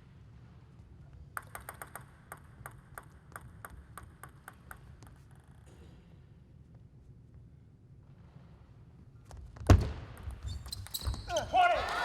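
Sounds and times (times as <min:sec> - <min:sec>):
table tennis ball clicking: 0:01.4 - 0:05.6.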